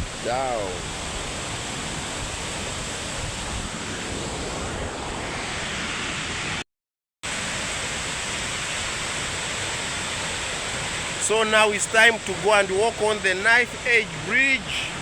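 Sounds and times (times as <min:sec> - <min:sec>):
waterfall roaring: 0:07.3 - 0:15.0.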